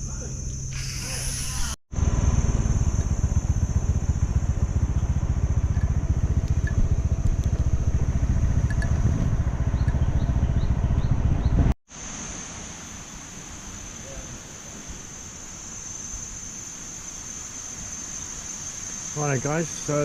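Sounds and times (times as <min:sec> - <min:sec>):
motorbike engine rumble: 0:00.0 - 0:11.8
steady high buzz: 0:00.0 - 0:20.0
wind on microphone: 0:00.8 - 0:11.8.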